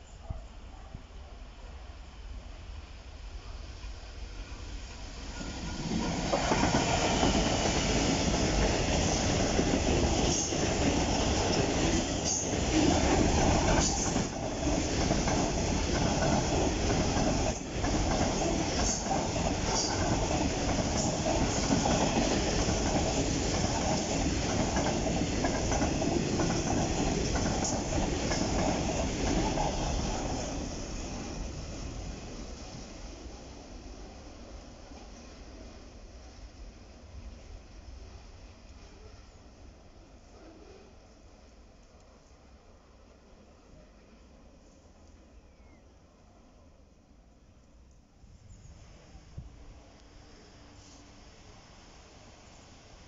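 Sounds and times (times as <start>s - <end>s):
diesel locomotive passing: 1.7s - 38.6s
freight wagons rolling on rails: 8.4s - 30.7s.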